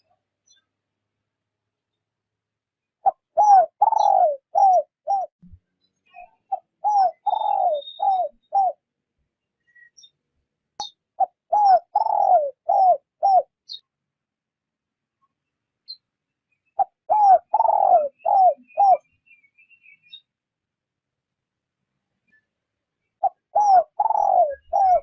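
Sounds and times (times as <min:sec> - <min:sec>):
dove cooing: 0:03.0 - 0:05.3, 0:06.5 - 0:08.8, 0:11.2 - 0:13.5, 0:16.8 - 0:19.0, 0:23.2 - 0:25.0.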